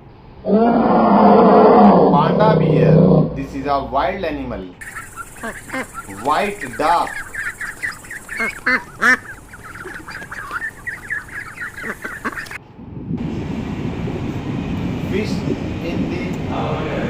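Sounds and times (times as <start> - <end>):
low rumbling noise: 0.0 - 17.0
ducks quacking: 4.8 - 12.6.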